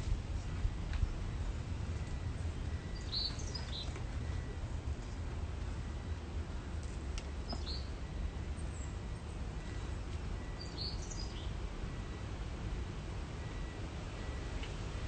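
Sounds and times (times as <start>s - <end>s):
low background rumble: 0.0s - 15.0s
small bird chirping: 2.7s - 4.5s, 7.4s - 7.9s, 10.5s - 11.5s.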